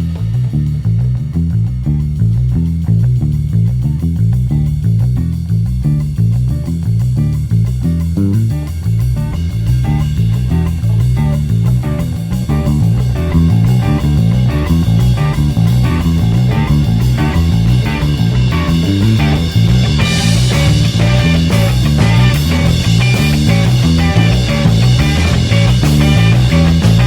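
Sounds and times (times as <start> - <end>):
electric bass playing: 0.0 - 27.0
rock song with drums: 0.0 - 27.0.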